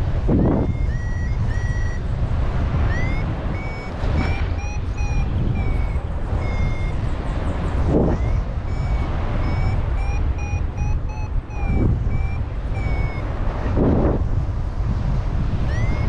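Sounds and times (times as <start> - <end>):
wind noise on microphone: 0.0 - 16.0
short high beeps: 0.3 - 2.1, 2.9 - 7.0, 7.9 - 13.8, 15.6 - 16.0.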